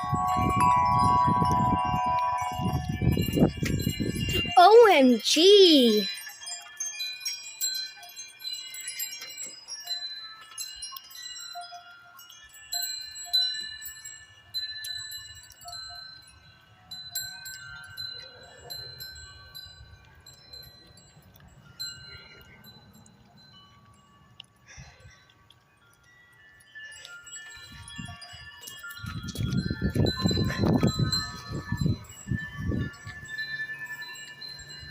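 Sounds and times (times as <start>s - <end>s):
low wind rumble: 0.0s - 4.6s, 29.0s - 33.4s
metal wind chimes ringing: 0.0s - 34.9s.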